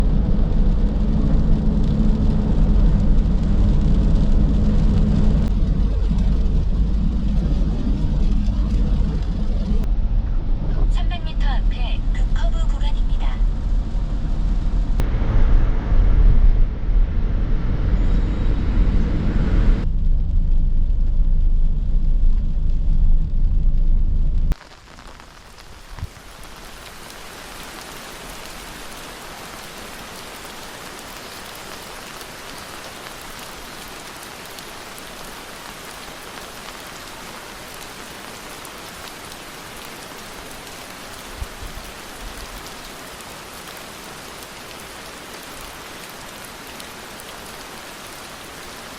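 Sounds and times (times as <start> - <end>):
steady rain: 0.0 - 10.0, 10.9 - 48.9
loud low rumble: 0.0 - 24.6.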